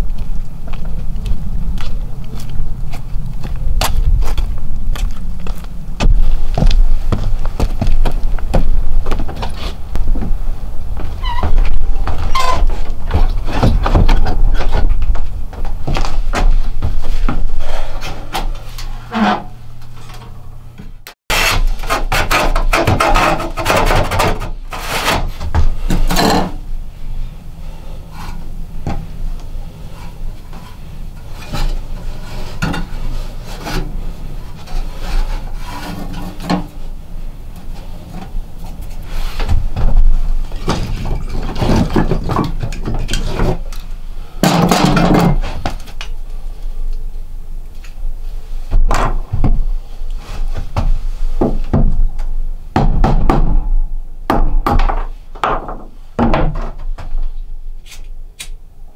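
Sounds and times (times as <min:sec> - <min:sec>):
wood scraping and knocking: 0:02.9 - 0:26.6, 0:30.0 - 0:36.9, 0:37.6 - 0:43.8.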